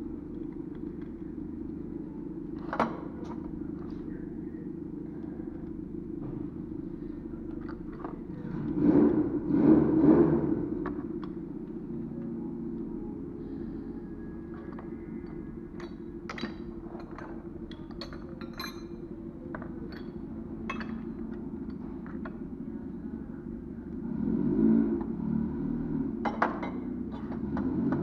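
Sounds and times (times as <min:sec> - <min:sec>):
steady low hum: 0:00.0 - 0:28.0
metallic clinks of tools: 0:15.8 - 0:19.1.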